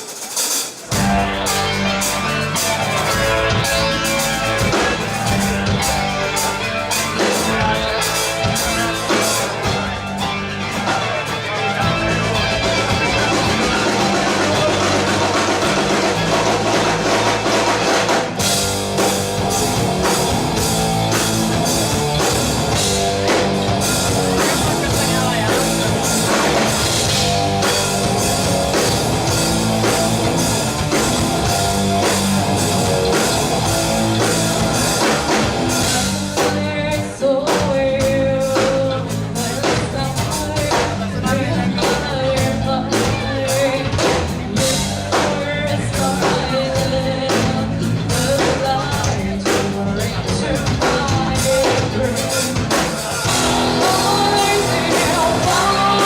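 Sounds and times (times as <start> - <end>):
drum kit: 0.0 - 56.0
rock band playing live: 0.0 - 56.0.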